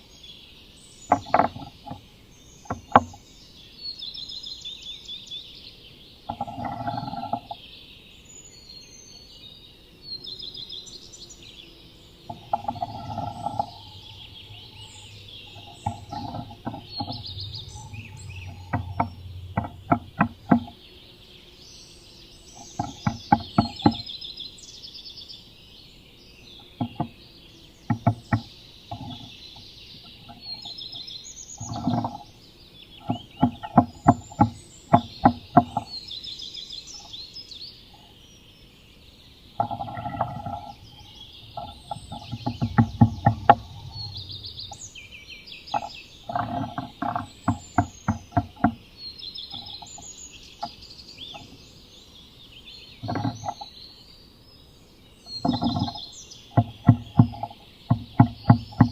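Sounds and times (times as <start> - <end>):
wild birds chirping and singing: 0.0 - 58.9
bird tapping inside wooden box: 1.1 - 3.2, 6.3 - 7.6, 12.2 - 20.9, 22.6 - 24.1, 26.6 - 31.0, 31.6 - 32.3, 33.0 - 36.0, 39.6 - 44.9, 45.7 - 48.9, 49.5 - 51.6, 53.0 - 53.7, 55.3 - 58.9.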